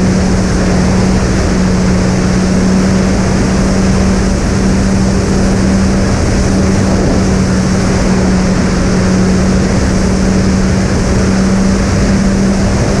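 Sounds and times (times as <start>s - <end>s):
electric motors and propellers humming: 0.0s - 13.0s
wind noise: 0.0s - 13.0s.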